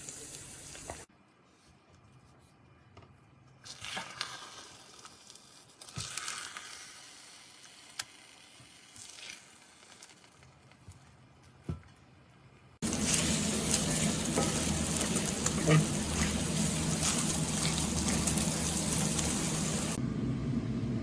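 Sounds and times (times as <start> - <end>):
food sizzling in a wok: 0.0 - 1.1, 12.8 - 20.0.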